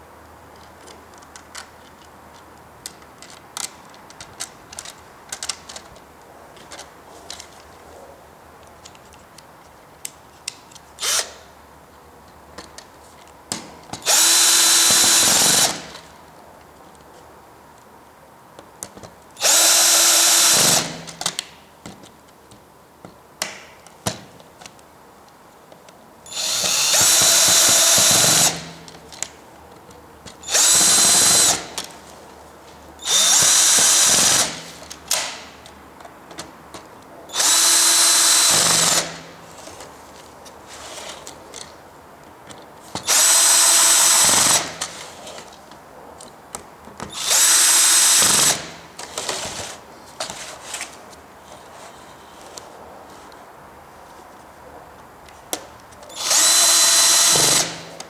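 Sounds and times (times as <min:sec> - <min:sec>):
cordless drill whining: 0:11.0 - 0:11.4, 0:14.0 - 0:16.0, 0:19.4 - 0:21.2, 0:26.3 - 0:28.9, 0:30.4 - 0:31.9, 0:33.0 - 0:35.3, 0:37.3 - 0:39.3, 0:43.0 - 0:45.1, 0:47.1 - 0:49.8, 0:56.1 - 0:58.0.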